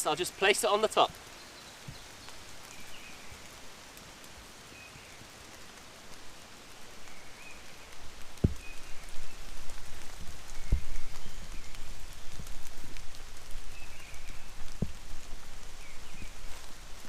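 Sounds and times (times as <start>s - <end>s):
rain pattering: 0.0s - 17.0s
low thumps: 8.4s - 9.2s, 14.6s - 15.5s.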